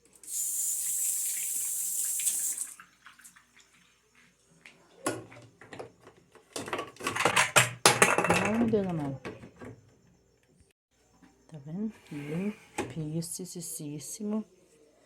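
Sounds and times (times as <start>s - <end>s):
water running: 0.0s - 5.6s.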